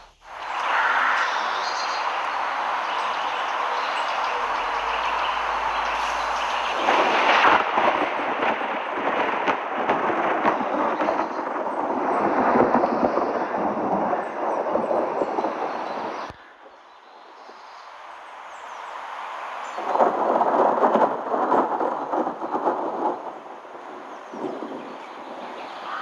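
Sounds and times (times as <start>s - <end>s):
sharp rain taps: 0.0s - 12.1s
heavy rain: 0.0s - 16.1s, 17.9s - 26.0s.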